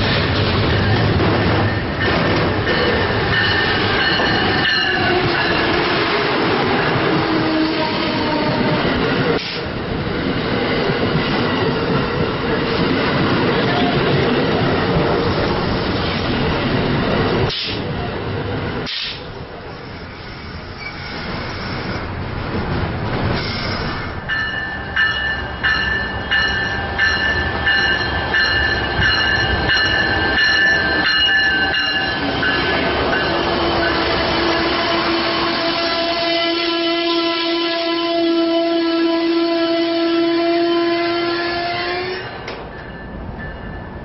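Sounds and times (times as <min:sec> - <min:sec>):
passenger train rumbling past: 0:00.0 - 0:44.0
high wheel squeal: 0:19.7 - 0:22.0.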